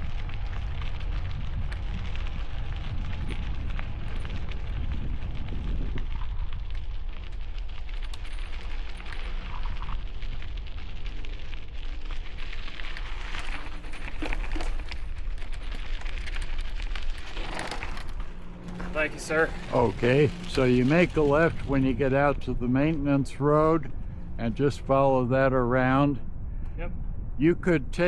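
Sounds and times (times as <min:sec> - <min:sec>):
wind on microphone: 0:00.0 - 0:11.1
bicycle tyres on gravel: 0:00.0 - 0:26.0.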